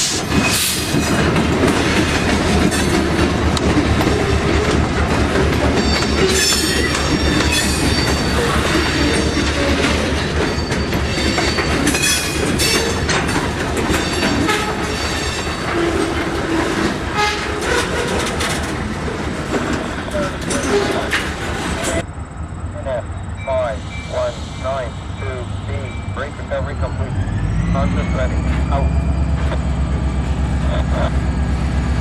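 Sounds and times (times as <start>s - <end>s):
diesel locomotive engine throbbing: 0.0s - 32.0s
high wheel squeals: 5.5s - 18.3s, 23.1s - 30.6s.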